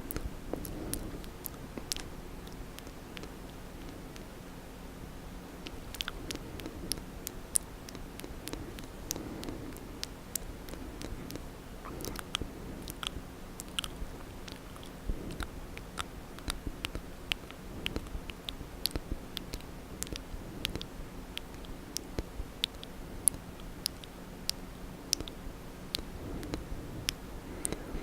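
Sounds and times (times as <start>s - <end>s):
tongue clicks: 0.1s - 4.3s, 5.6s - 27.9s
lip smacks: 5.6s - 28.0s.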